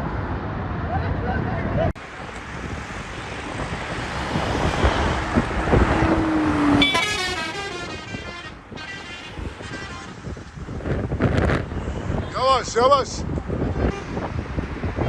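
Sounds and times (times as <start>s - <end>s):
engine and road noise: 0.0s - 15.0s
vehicle horn: 6.7s - 10.4s, 13.7s - 14.2s.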